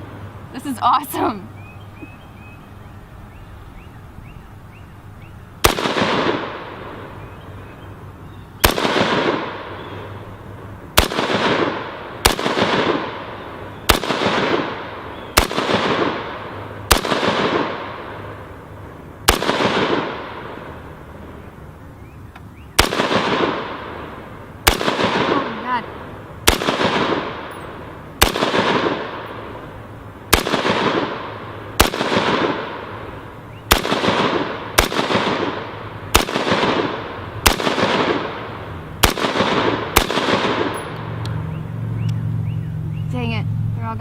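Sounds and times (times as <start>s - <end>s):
rifle shots with echo: 5.6s - 7.2s, 8.6s - 10.2s, 11.0s - 18.6s, 19.2s - 21.4s, 22.8s - 41.4s.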